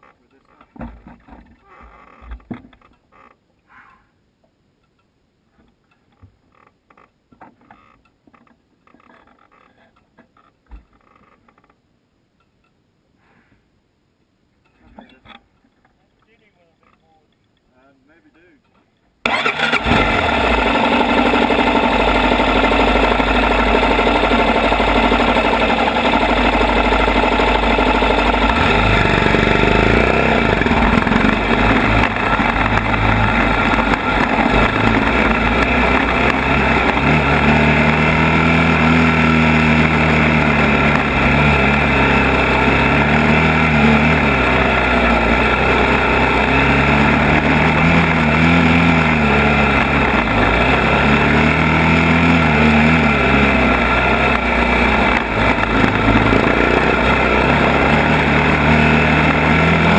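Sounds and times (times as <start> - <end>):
atv engine revving: 19.2 - 59.9.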